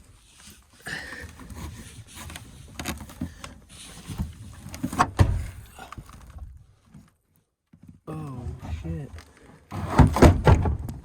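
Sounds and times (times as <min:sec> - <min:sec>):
tailgate knocking and scraping: 0:04.9 - 0:05.6, 0:09.7 - 0:11.0.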